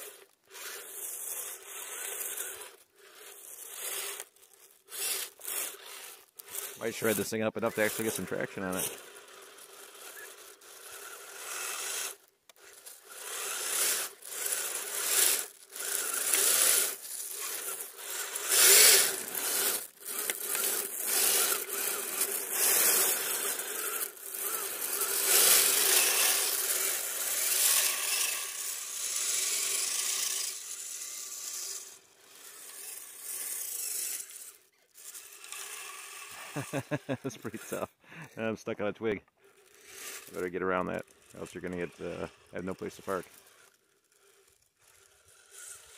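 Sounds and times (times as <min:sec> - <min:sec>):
electric motor whine: 0:00.0 - 0:37.8, 0:39.4 - 0:45.9
wheels scraping icy snow: 0:00.0 - 0:45.9.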